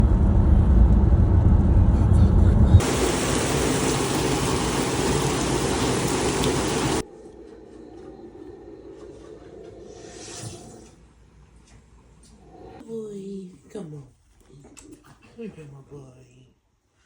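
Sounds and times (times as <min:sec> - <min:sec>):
deep low rumble: 0:00.0 - 0:10.1
heavy rain hissing: 0:02.8 - 0:07.0.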